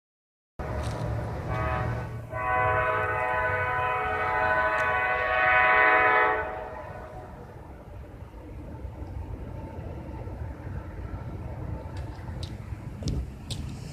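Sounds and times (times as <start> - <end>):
low engine rumble: 0.6 - 13.9
locomotive air horn: 1.4 - 7.3.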